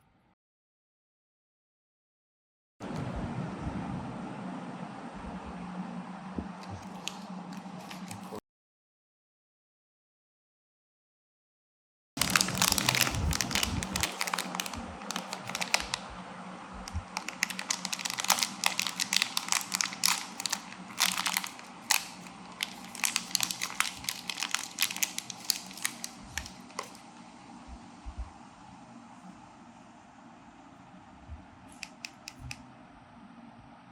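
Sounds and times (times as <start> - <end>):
packaging crinkling and rustling: 6.6 - 8.4, 12.2 - 16.1, 16.8 - 27.1.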